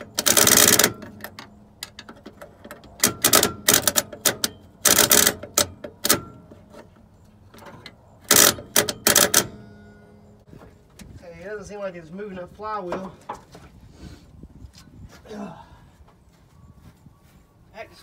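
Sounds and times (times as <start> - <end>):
starter motor clicking and crackling: 0.0 - 6.4, 7.5 - 9.6.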